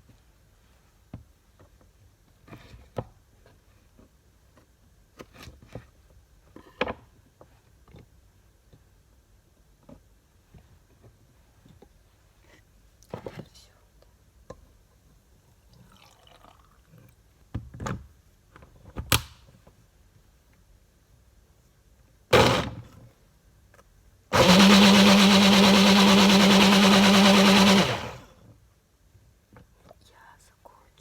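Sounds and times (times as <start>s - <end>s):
blender motor running: 22.4s - 22.9s, 24.3s - 28.3s.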